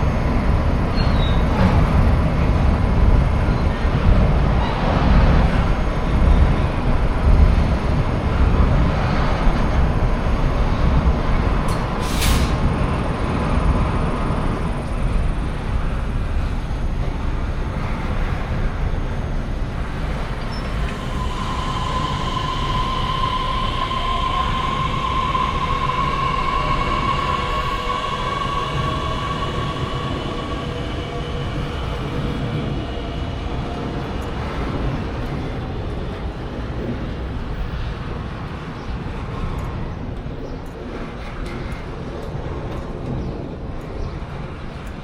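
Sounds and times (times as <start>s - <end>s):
train rumbling on tracks: 0.0s - 45.0s
high whine rising in pitch: 20.6s - 34.4s.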